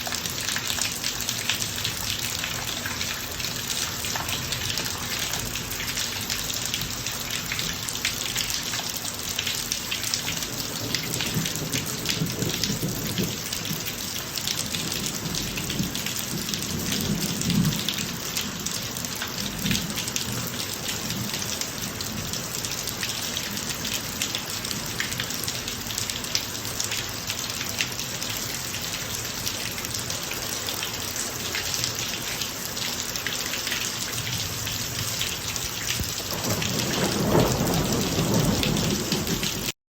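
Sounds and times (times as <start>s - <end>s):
rain falling on driveway: 0.0s - 39.8s
rumble of thunder: 10.6s - 13.9s, 14.7s - 18.3s, 34.4s - 39.7s.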